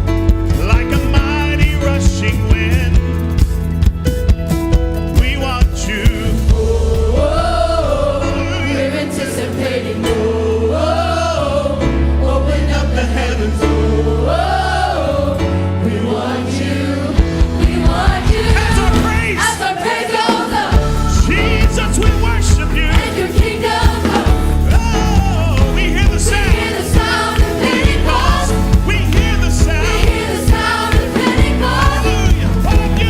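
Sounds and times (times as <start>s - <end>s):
deep bass line: 0.0s - 9.5s, 17.0s - 19.5s, 20.7s - 33.0s
band accompaniment: 0.0s - 33.0s
gospel choir singing: 5.8s - 33.0s
steady beat: 17.2s - 33.0s.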